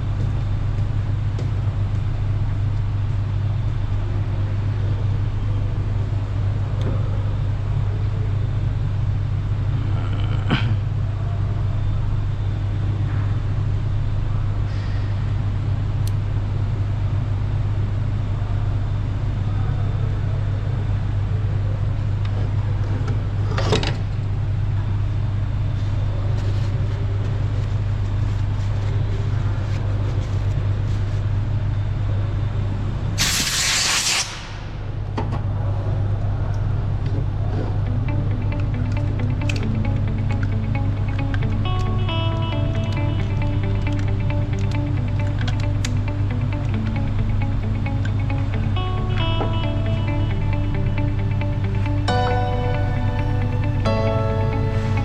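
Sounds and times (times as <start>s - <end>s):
low hum: 34.4s - 55.0s.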